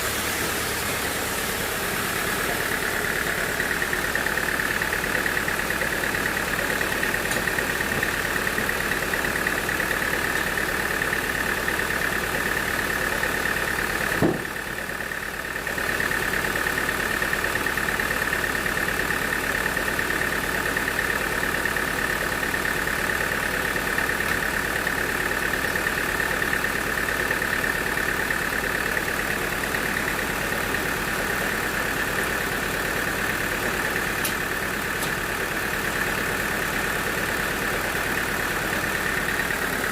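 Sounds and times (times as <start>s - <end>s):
band sawmill engine droning: 0.0s - 39.9s
sharp knock: 14.2s - 14.6s.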